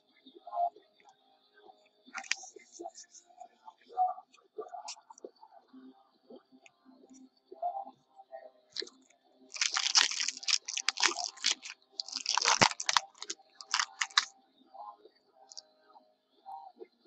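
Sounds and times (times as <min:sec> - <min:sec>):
card wrappers crinkling: 0:02.2 - 0:02.4, 0:09.6 - 0:14.3.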